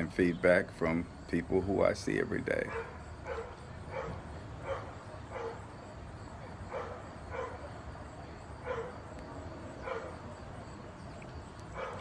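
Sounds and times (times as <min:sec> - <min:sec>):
dog barking: 0:02.6 - 0:05.7, 0:06.7 - 0:07.7, 0:08.6 - 0:09.0, 0:09.8 - 0:10.2, 0:11.8 - 0:12.0.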